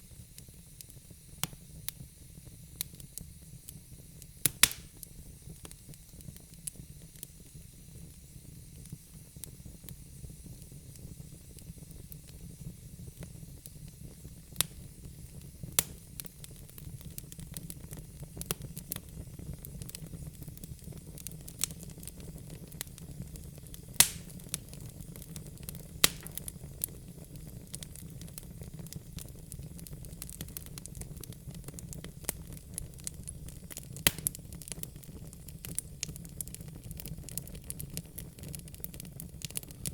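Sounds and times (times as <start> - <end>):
fire flames rumbling and hissing: 0.0 - 39.9
logs crackling and popping: 4.4 - 6.8, 15.7 - 39.9.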